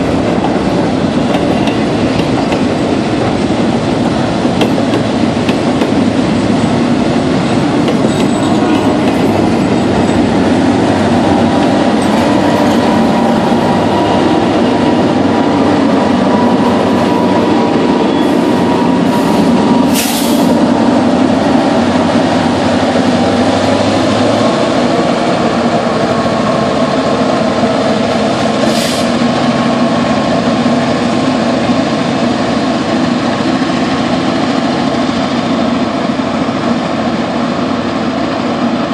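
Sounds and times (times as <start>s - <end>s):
train wheels rumbling on rail: 0.0s - 38.9s
short hiss: 19.9s - 20.6s.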